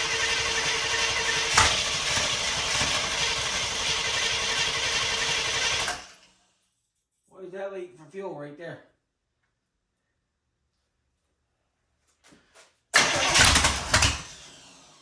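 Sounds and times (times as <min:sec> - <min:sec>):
engine running on a stand: 0:00.0 - 0:06.2.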